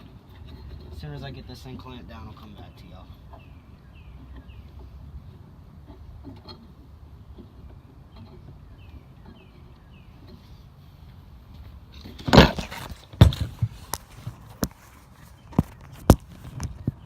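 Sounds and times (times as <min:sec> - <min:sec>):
loud clatter: 0:12.2 - 0:14.7.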